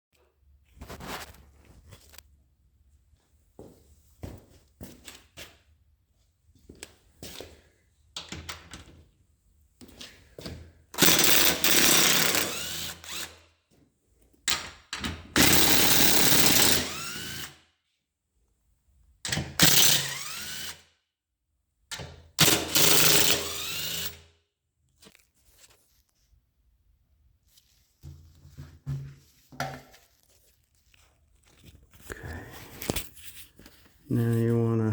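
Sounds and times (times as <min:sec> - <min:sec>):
power drill running: 0:11.0 - 0:13.4, 0:15.4 - 0:17.6, 0:19.6 - 0:20.8, 0:22.4 - 0:24.2.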